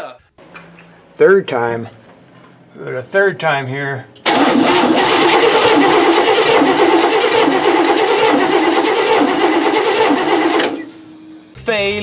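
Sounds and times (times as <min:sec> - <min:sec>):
engine starter cranking: 0:04.2 - 0:11.4.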